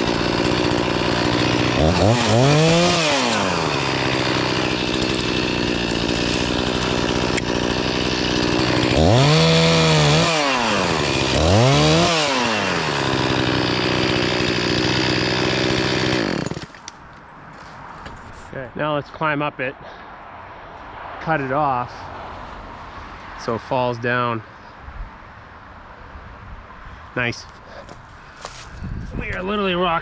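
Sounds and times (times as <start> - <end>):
chainsaw idling and revving: 0.0 - 16.8.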